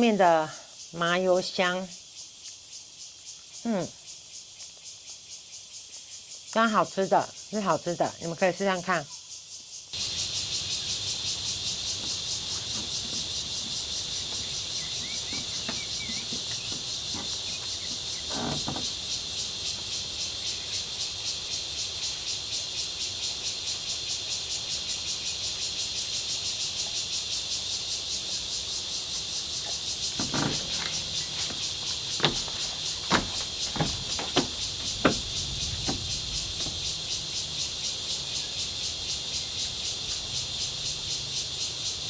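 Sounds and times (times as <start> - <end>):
insect chorus buzzing: 0.0 - 42.0
soft knock: 30.2 - 37.0.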